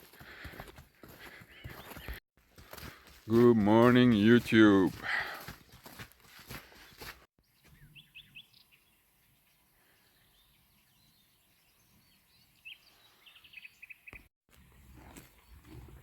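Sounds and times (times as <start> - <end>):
small bird chirping: 7.4 - 9.4, 10.1 - 14.3.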